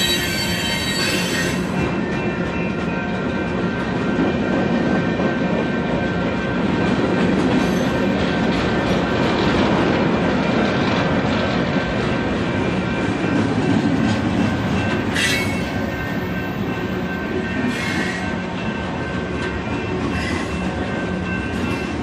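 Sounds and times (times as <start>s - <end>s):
high wheel squeal: 0.0s - 1.7s, 15.1s - 16.0s, 17.7s - 18.3s
rumble of wheels on rail: 0.0s - 22.0s.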